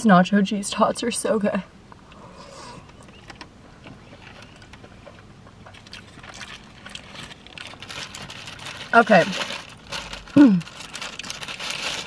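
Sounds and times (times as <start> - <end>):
faint chewing mouth sounds: 4.0 - 7.5
paper rustling: 5.7 - 12.0.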